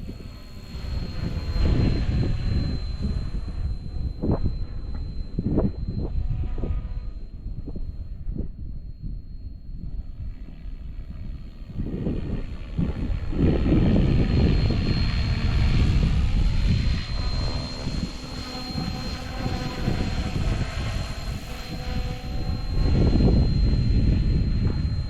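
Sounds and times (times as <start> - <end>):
rc helicopter whine and rotor: 0.0 - 25.0
wind buffeting microphone: 0.0 - 25.0.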